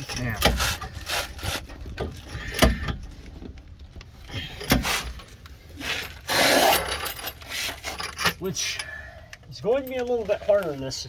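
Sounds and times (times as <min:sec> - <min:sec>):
wrench scraping metal: 0:05.8 - 0:08.5.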